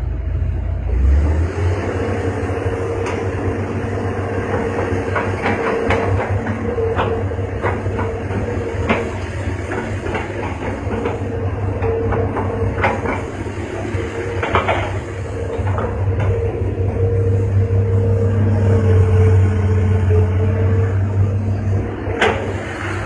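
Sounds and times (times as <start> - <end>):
excavator diesel engine running: 0.0 - 23.0
metallic knocks and clanks: 4.5 - 16.5.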